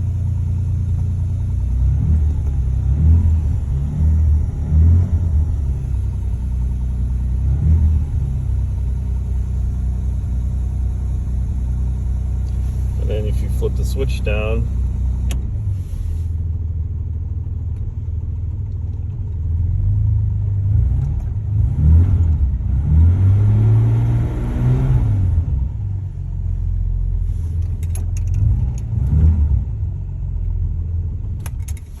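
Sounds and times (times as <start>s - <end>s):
car engine revving: 0.0s - 16.0s, 20.6s - 25.8s.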